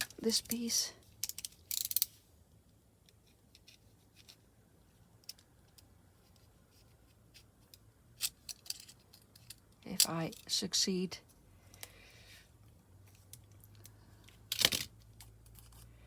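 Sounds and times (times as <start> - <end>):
small handling clicks: 0.0 - 2.2.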